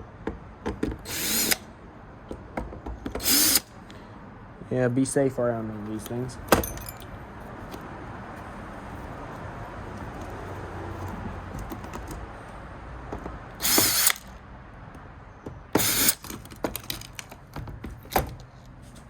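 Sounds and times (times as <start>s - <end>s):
screwdriver ratchet whirring: 1.0s - 1.6s, 3.2s - 3.7s, 13.5s - 14.4s, 15.8s - 17.3s.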